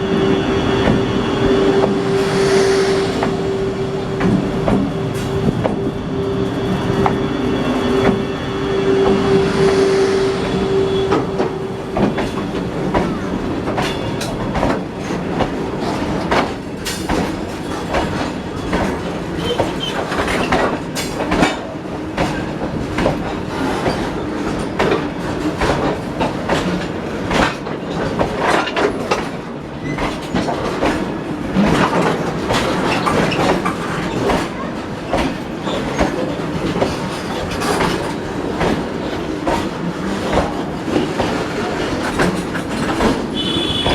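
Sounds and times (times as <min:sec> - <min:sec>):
steady tone: 0:00.0 - 0:12.9
train wheel rumble: 0:00.0 - 0:43.9.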